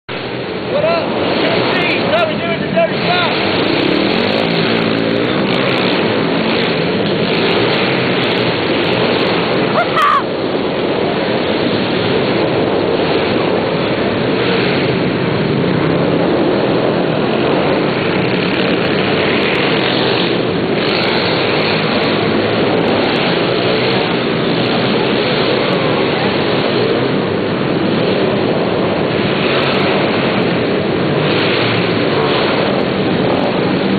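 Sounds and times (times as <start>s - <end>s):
pit bike engine revving: 0.1s - 33.9s.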